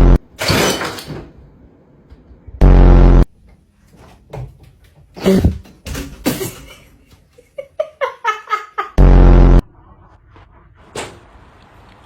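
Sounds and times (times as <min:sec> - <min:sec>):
loud harsh buzz: 0:02.6 - 0:03.3, 0:09.0 - 0:09.6.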